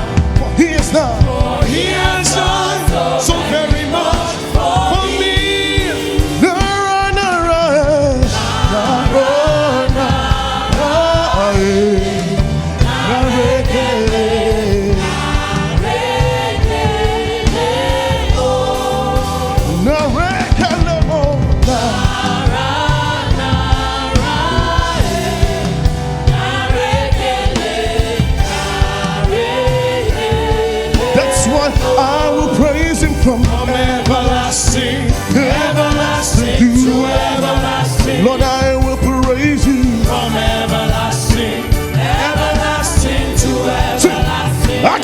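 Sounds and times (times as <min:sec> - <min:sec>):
gospel choir singing: 0:00.0 - 0:45.0
steady beat: 0:00.0 - 0:45.0.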